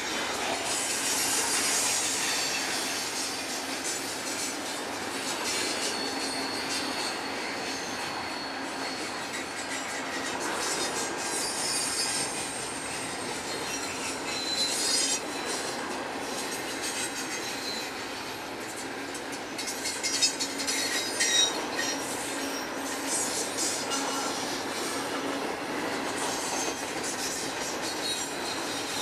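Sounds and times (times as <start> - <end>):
train wheels rumbling on rails: 0.0 - 29.0
high-pitched wheel squeals: 4.4 - 18.2, 19.6 - 25.2, 26.1 - 29.0.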